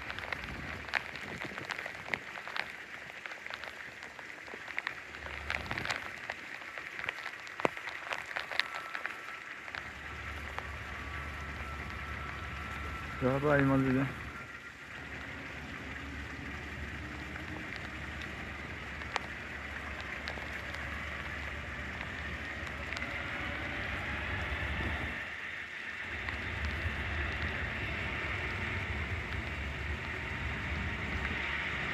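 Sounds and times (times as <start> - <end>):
jet engines roaring with whine: 0.0 - 31.9.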